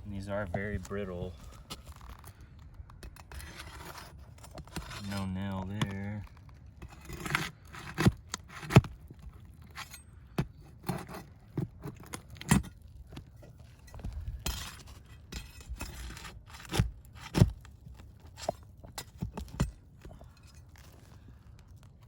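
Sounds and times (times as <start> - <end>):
metal tool scraping shingles: 3.0 - 6.2, 6.8 - 21.2.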